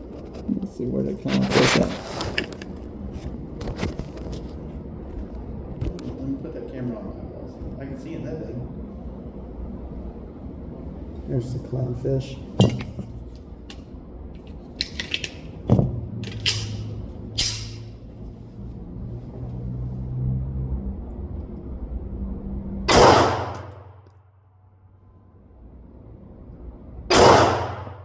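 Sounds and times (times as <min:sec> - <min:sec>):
pistol shots: 0:22.9 - 0:23.8, 0:27.1 - 0:28.0.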